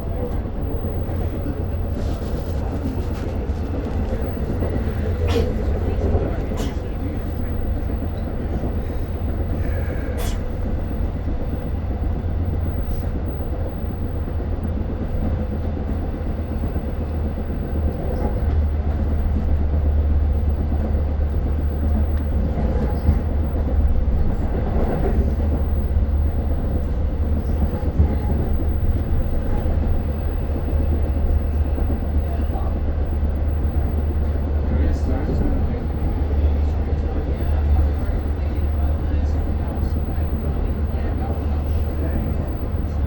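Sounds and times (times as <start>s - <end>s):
rail clicks: 0.0s - 13.6s
train rumble: 0.0s - 43.0s.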